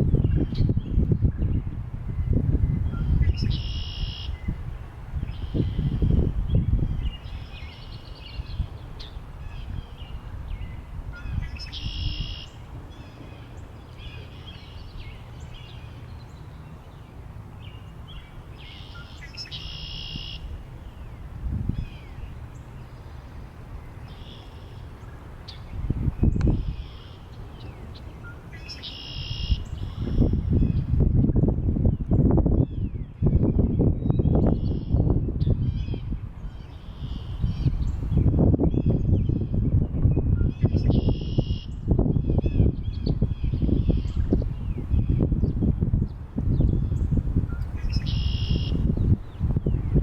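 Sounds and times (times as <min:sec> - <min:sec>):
wind buffeting microphone: 0:00.0 - 0:24.2, 0:24.8 - 0:50.0
birds singing: 0:00.1 - 0:04.6, 0:05.2 - 0:31.0, 0:31.8 - 0:50.0
bird chirps: 0:02.3 - 0:04.6, 0:05.3 - 0:17.0, 0:17.6 - 0:21.2, 0:24.0 - 0:30.8, 0:46.6 - 0:49.9.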